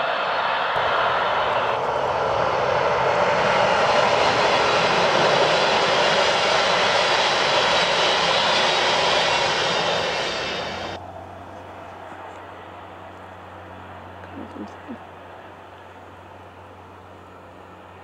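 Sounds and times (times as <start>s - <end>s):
train passing at speed: 0.0s - 14.2s.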